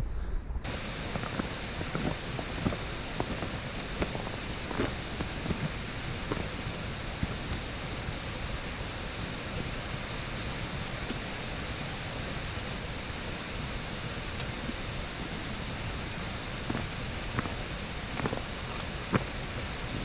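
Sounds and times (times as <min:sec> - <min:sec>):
waterfall rushing: 0:00.6 - 0:20.0.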